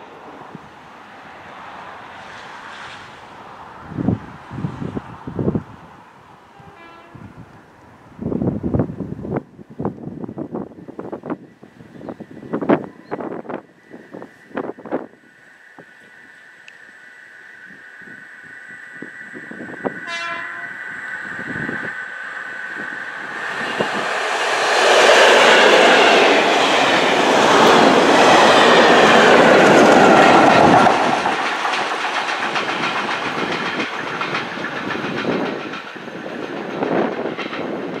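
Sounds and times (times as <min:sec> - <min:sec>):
train passing at speed: 0:00.0 - 0:38.0
rapid clicking of wheels: 0:29.6 - 0:38.0.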